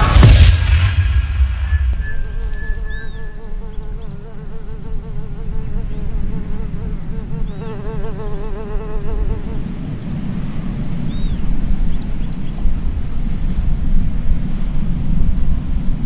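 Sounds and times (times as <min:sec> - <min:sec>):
low wind rumble: 0:00.0 - 0:03.3.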